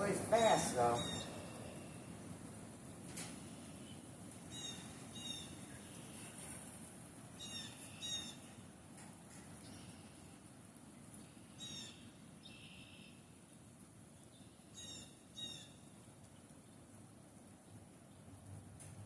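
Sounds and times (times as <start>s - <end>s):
birds calling: 0.0s - 2.2s, 3.4s - 6.6s.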